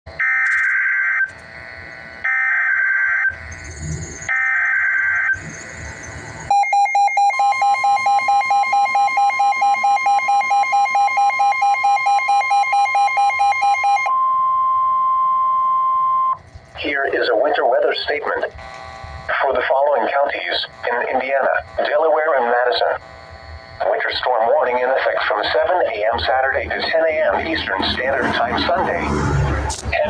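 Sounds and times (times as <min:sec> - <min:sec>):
steady alarm tone: 0:00.1 - 0:30.0
digital data warble: 0:03.2 - 0:11.2, 0:16.3 - 0:30.0
rapid alert beeping: 0:03.3 - 0:14.1, 0:23.8 - 0:30.0.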